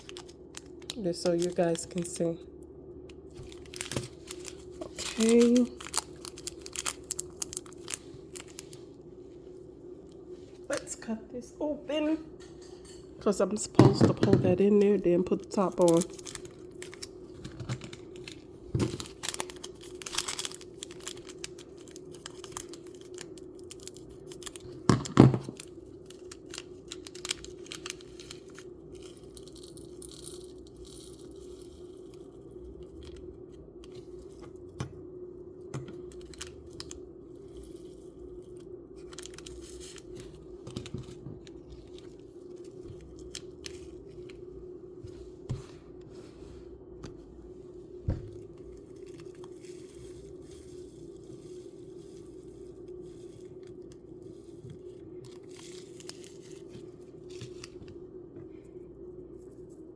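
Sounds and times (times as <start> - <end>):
plastic clicks and crinkles: 0.0 - 2.4, 3.0 - 8.9, 13.9 - 30.9, 35.8 - 44.4
steady low hum: 0.0 - 59.9
packet being torn open: 3.4 - 8.8, 17.9 - 24.7.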